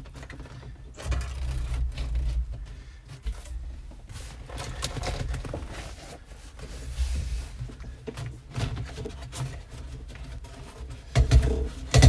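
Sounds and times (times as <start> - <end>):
hose rustling and scraping: 3.5 - 11.0.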